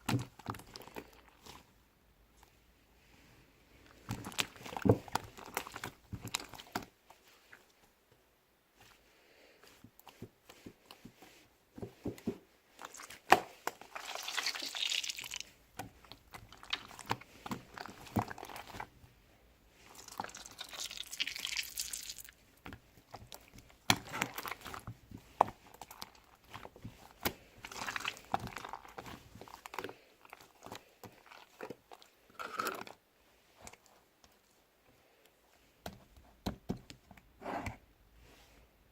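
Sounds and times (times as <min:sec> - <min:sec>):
slime being squished: 0:03.9 - 0:07.0, 0:12.8 - 0:18.9, 0:19.8 - 0:33.0
slime crackling and hissing: 0:12.9 - 0:15.6, 0:19.8 - 0:22.4.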